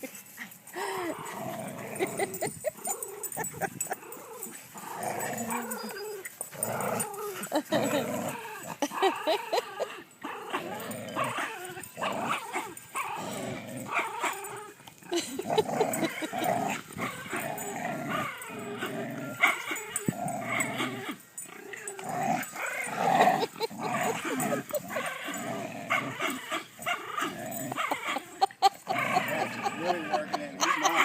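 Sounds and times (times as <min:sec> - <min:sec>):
dogs growling in play: 0:00.3 - 0:31.0
dog yipping and whining: 0:05.2 - 0:07.6.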